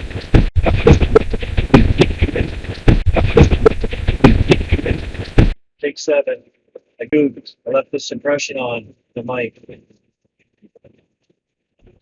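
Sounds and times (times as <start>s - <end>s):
rapid irregular clicks: 0.0s - 5.5s.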